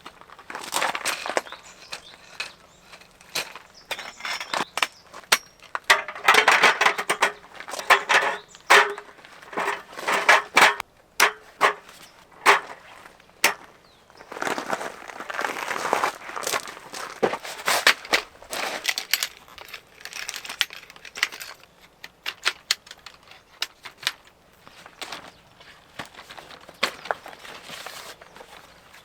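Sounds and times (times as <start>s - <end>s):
rustling and crinkling: 0.0s - 29.0s
sharp clicks and knocks: 1.4s - 12.8s, 13.4s - 13.7s.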